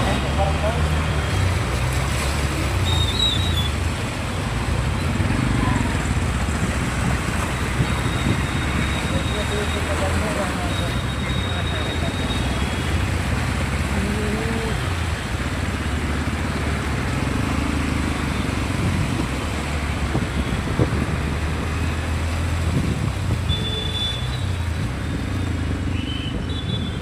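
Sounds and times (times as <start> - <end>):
traffic engines running: 0.0 - 27.0.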